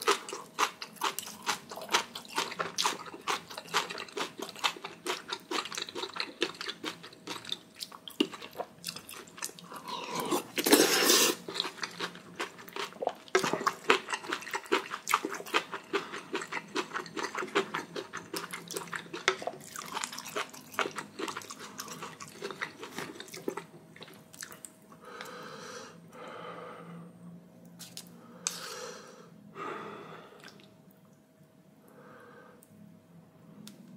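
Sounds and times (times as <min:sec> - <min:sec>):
wet chewing: 0:00.0 - 0:24.7.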